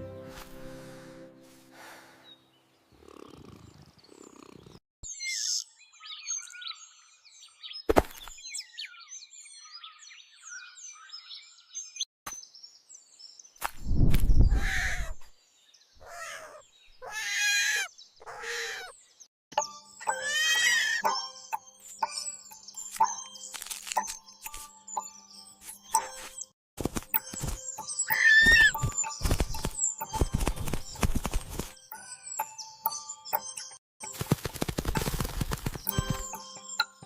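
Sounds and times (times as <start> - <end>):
birds chirping: 14.3 - 26.5, 27.1 - 33.8, 35.2 - 37.0
pitched animal calls: 16.0 - 18.9.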